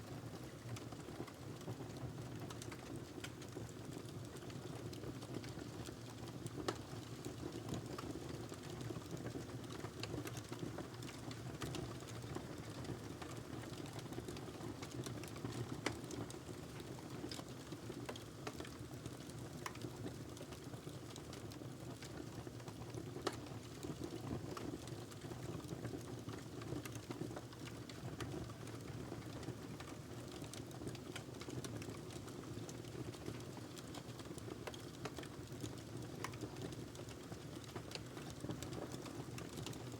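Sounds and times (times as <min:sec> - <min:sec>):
wood fire burning: 0:00.5 - 0:39.8.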